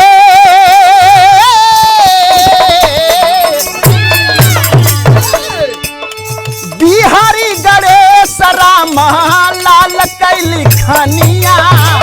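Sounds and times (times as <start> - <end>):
low drum beat: 2.1 - 5.7, 10.5 - 12.0.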